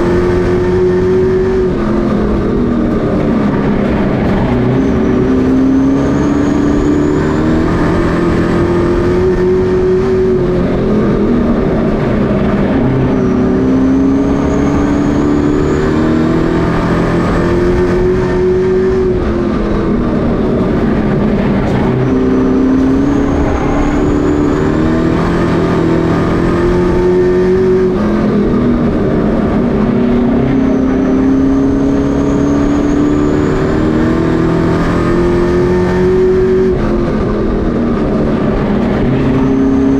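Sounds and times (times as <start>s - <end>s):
race truck engines revving: 0.0s - 39.9s.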